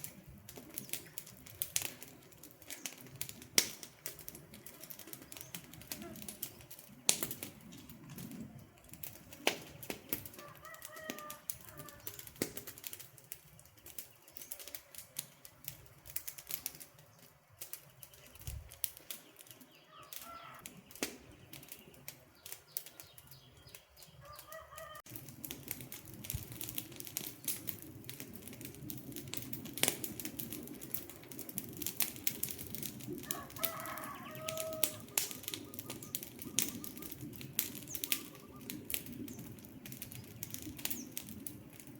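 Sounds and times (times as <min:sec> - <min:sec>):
low hiss of fire: 0:00.0 - 0:24.0, 0:25.0 - 0:41.9
campfire crackling and popping: 0:00.0 - 0:41.9
bird calling faintly: 0:16.7 - 0:25.0, 0:33.2 - 0:39.4.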